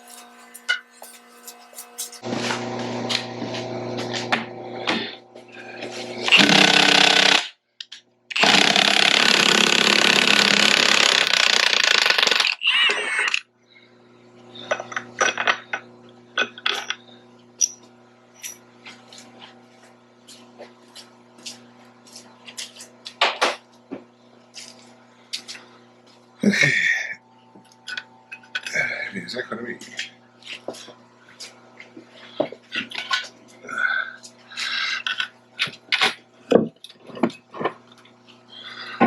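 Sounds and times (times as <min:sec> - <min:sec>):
hammering power tool: 0:00.0 - 0:07.6, 0:08.3 - 0:12.6.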